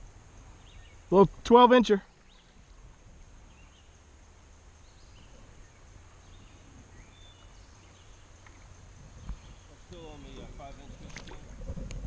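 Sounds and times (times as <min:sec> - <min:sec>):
faint bird chirps: 0:00.5 - 0:01.2, 0:01.9 - 0:04.1, 0:04.7 - 0:10.4.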